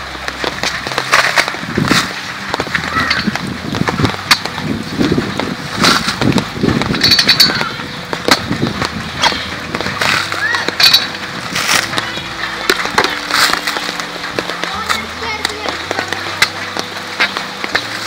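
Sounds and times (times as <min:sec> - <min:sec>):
coconut husk scraping and tearing: 0:00.0 - 0:18.0.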